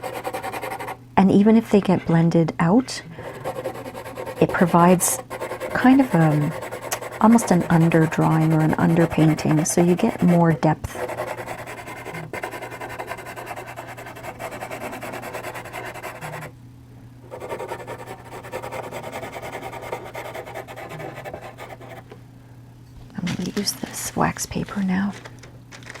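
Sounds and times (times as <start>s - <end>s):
pencil shading on paper: 0.0s - 1.0s, 3.2s - 16.5s, 17.3s - 22.0s
low electrical hum: 0.0s - 26.0s.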